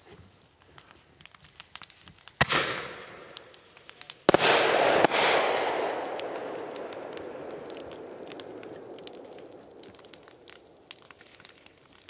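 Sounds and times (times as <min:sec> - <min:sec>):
fireworks bangs: 0:02.4 - 0:12.0.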